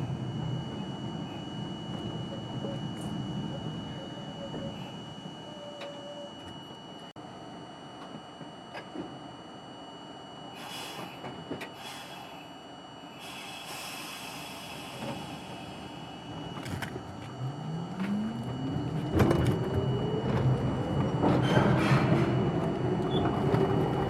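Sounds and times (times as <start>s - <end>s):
train motors whining: 13.3s - 21.3s.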